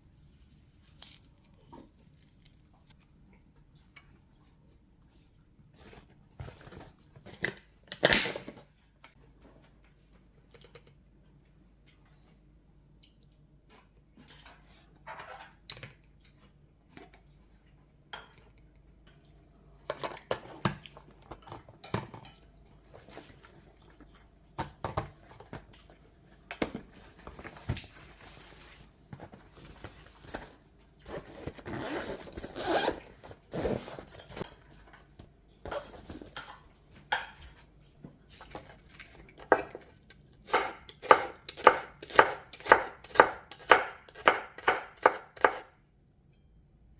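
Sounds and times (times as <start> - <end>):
knife chopping on cutting board: 40.5 - 45.7.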